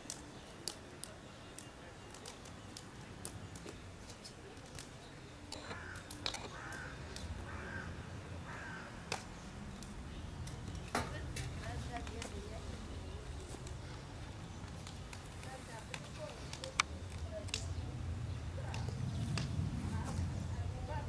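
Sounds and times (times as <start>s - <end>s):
bird calling: 5.5s - 9.5s.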